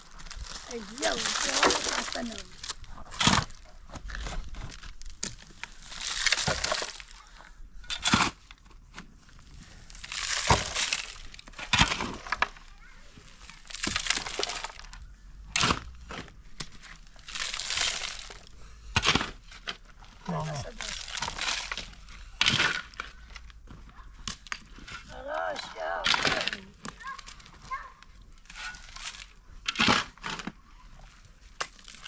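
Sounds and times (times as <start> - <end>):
dry plant material crackling: 0.0 - 3.6, 4.4 - 7.5, 9.6 - 11.6, 12.5 - 15.0, 16.9 - 18.5, 20.0 - 22.1.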